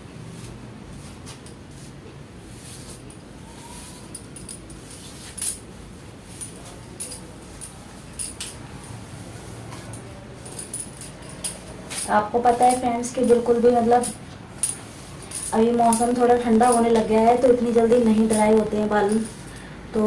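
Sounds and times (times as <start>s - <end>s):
comb scratching through wet hair: 12.1s - 19.5s.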